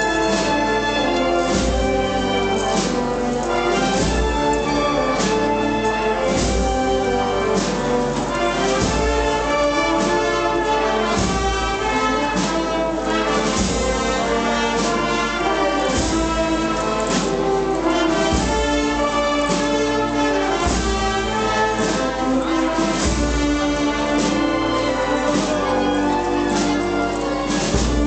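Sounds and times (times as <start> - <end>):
brass band playing a march: 0.0 - 28.0.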